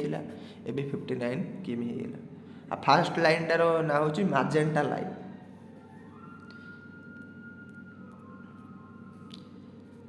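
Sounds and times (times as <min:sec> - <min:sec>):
faint background hum: 0:00.0 - 0:10.0.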